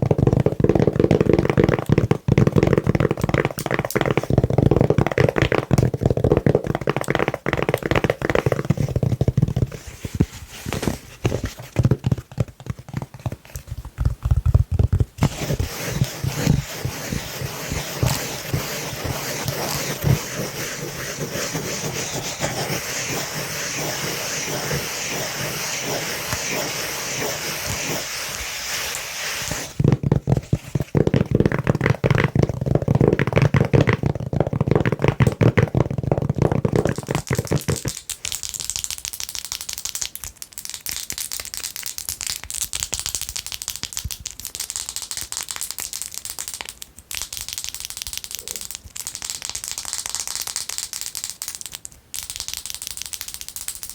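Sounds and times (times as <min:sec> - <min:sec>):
fingernails scratching on velvet: 0:08.0 - 0:29.8.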